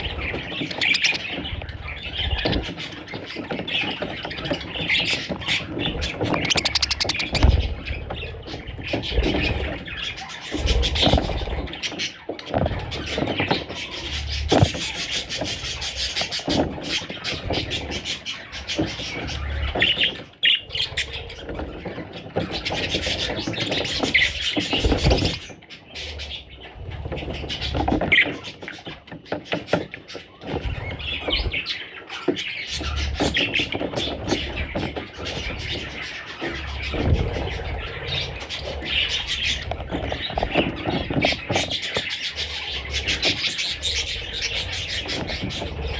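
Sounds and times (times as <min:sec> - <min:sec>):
budgerigars chattering and chirping: 0:00.0 - 0:45.9.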